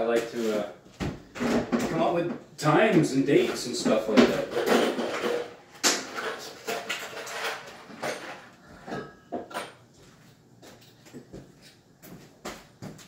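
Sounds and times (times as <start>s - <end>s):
knocks and clatters of cabinet work: 0.1s - 9.9s.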